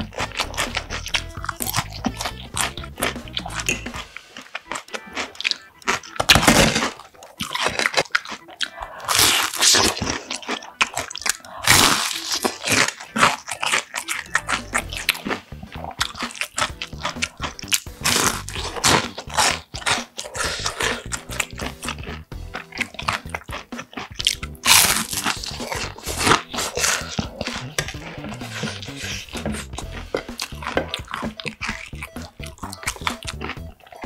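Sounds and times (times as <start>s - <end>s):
crunching of fried food: 0.0s - 34.0s
wet chewing: 0.0s - 34.0s.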